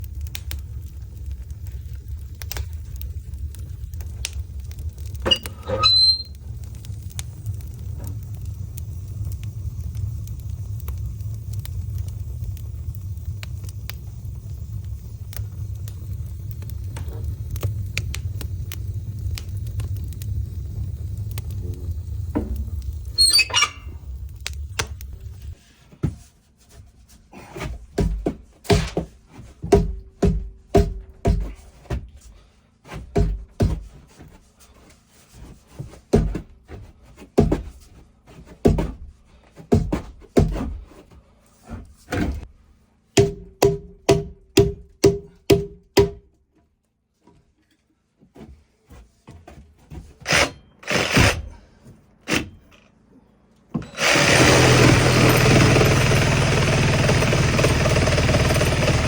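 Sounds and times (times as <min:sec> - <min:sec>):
hammer driving nails into timber: 0:50.2 - 0:51.5.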